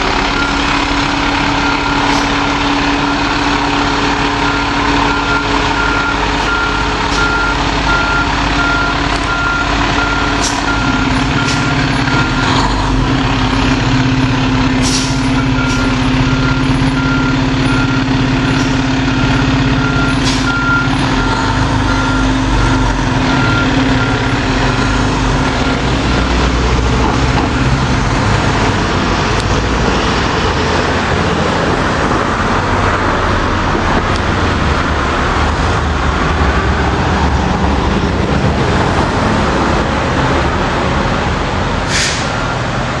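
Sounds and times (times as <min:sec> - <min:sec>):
backup alarm beeping: 0:00.0 - 0:14.4, 0:15.1 - 0:26.3
truck engine running: 0:00.0 - 0:43.0
short air hisses: 0:14.8 - 0:15.2, 0:41.9 - 0:42.4.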